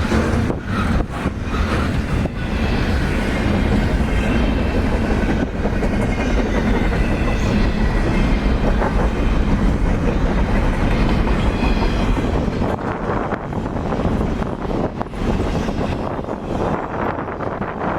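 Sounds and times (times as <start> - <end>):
train rumbling on rails: 0.0 - 17.9.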